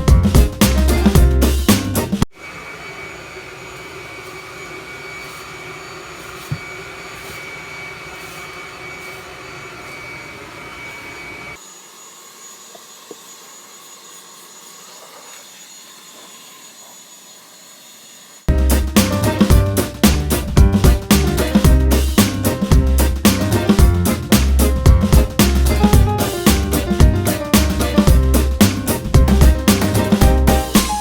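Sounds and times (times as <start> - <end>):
leaf blower whining: 2.3 - 18.8.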